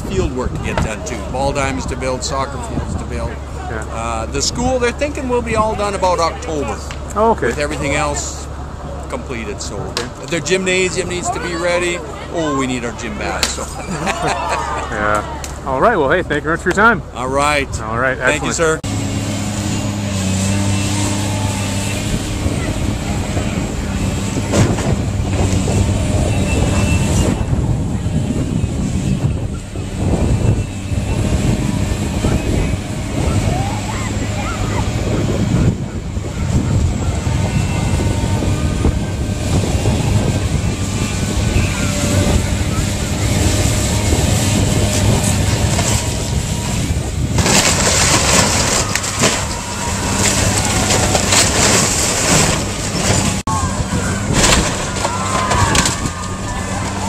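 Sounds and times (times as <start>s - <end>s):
demolition machinery engine humming: 0.0s - 57.0s
sharp demolition impacts: 36.2s - 57.0s
debris crunching and cracking: 42.6s - 57.0s.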